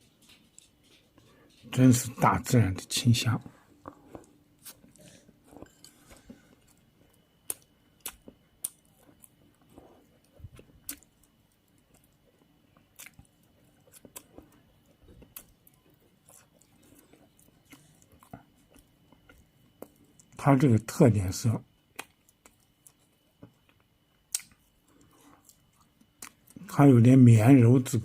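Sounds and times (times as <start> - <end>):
person chewing food: 3.3 - 20.4, 21.7 - 26.7.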